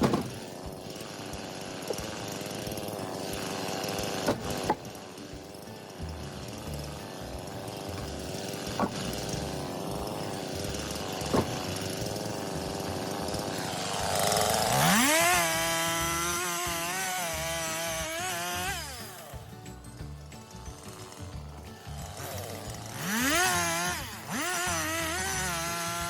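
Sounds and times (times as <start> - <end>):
chainsaw engine running: 0.0 - 26.0
sharp knocks: 11.3 - 11.7.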